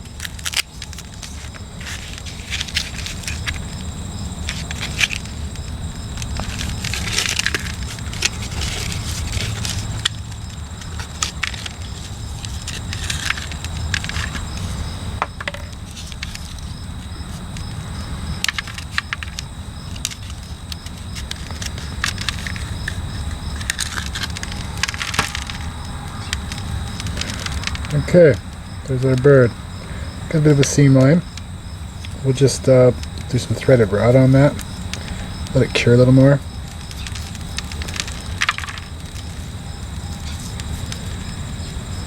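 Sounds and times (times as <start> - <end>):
plastic mold crackling and snapping: 18.4 - 28.0, 36.8 - 41.1.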